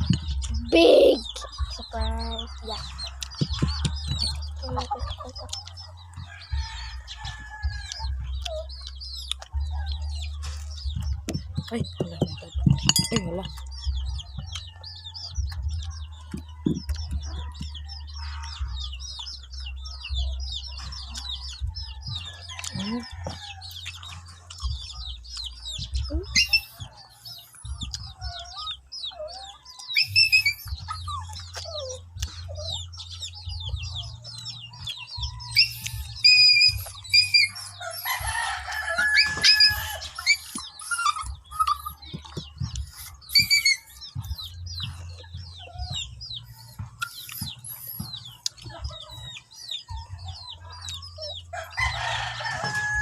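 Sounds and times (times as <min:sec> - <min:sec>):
chickens calling: 0:00.0 - 0:53.0
small birds chirping: 0:00.0 - 0:53.0
rooster crowing: 0:22.1 - 0:23.8, 0:36.8 - 0:41.1, 0:51.5 - 0:53.0.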